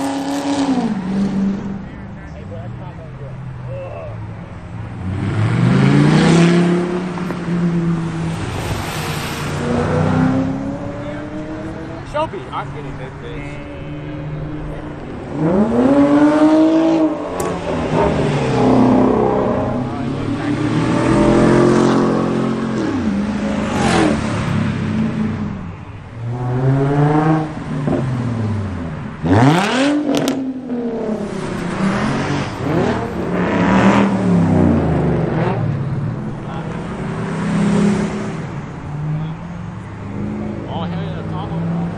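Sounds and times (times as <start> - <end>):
car engine accelerating: 0.0 - 41.9.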